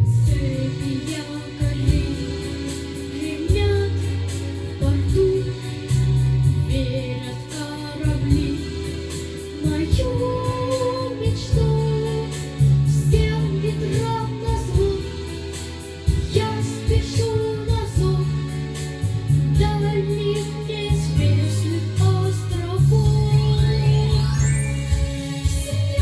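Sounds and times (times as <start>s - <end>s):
backing track with beat and bass: 0.0s - 26.0s
child singing: 9.6s - 15.3s, 16.2s - 18.4s, 19.6s - 24.3s.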